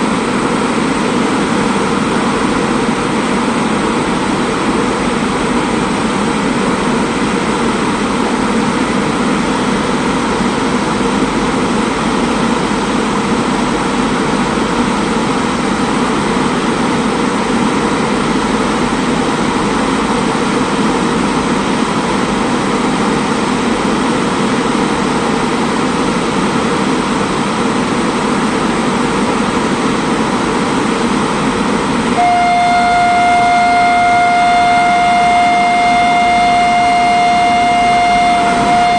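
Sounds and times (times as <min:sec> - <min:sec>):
passenger train rolling past: 0:00.0 - 0:38.9
loud steady high tone: 0:32.1 - 0:38.9.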